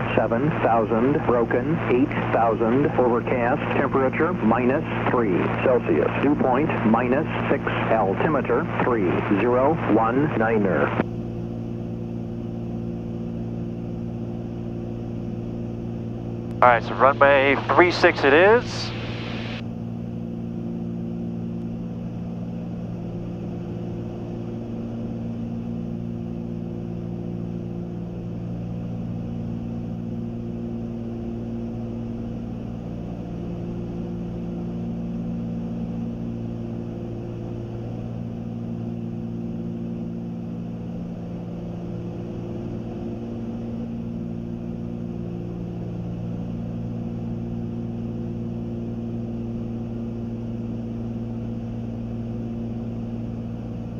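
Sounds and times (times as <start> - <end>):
airplane engines droning: 0.0 - 30.4.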